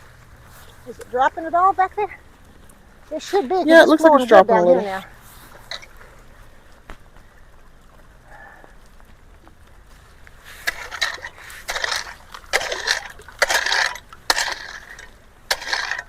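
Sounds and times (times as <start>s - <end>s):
faint water flow: 0.0s - 16.0s
splashing and scraping gravel: 0.0s - 16.0s.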